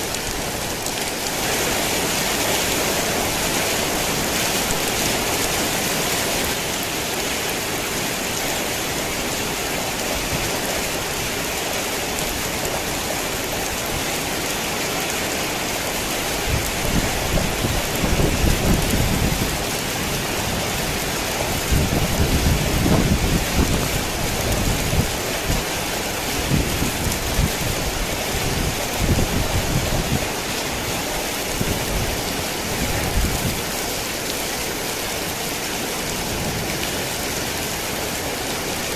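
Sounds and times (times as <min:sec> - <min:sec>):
heavy rain: 0:00.0 - 0:38.9
thunder rumbling: 0:16.5 - 0:25.1.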